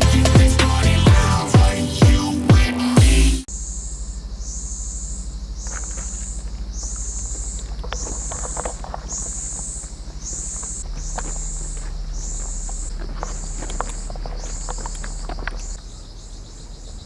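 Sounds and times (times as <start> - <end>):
cicadas calling in pulses: 3.5 - 17.0.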